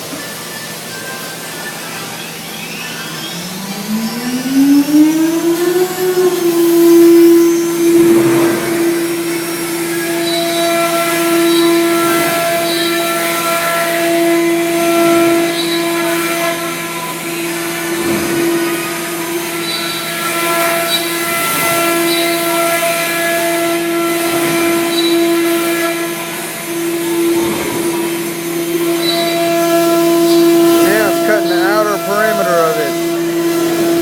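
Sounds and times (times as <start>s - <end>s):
router spindle high whine: 0.0s - 22.6s, 26.1s - 34.0s
router bit cutting: 30.0s - 34.0s.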